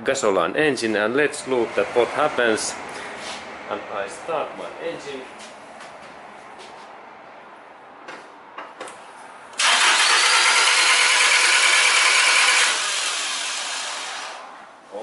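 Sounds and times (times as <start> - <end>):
engine cranking on starter: 9.6 - 14.4.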